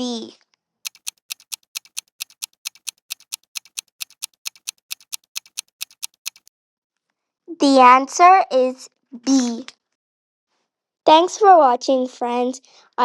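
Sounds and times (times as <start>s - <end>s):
clock ticking quickly: 0.9s - 6.5s.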